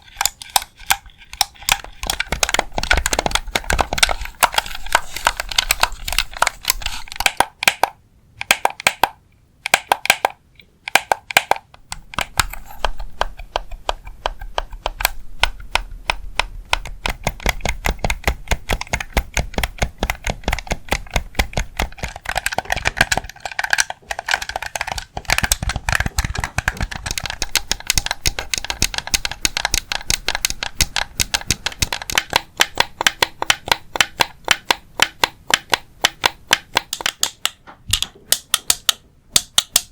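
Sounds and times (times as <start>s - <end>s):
fast light tapping: 0.2s - 39.9s.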